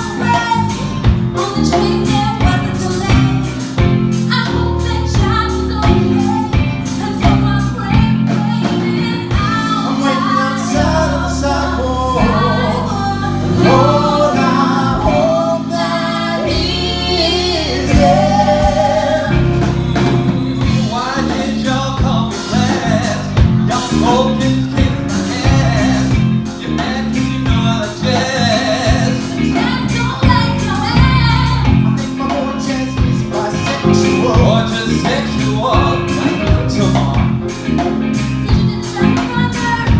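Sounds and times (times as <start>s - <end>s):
band playing: 0.0s - 39.9s
low bass notes: 0.0s - 39.9s
voices singing: 0.0s - 39.9s
steady drum hits: 12.1s - 32.2s.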